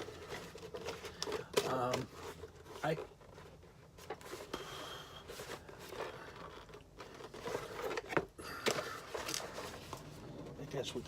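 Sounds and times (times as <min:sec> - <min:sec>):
cardboard boxes crinkling: 0:00.0 - 0:04.5.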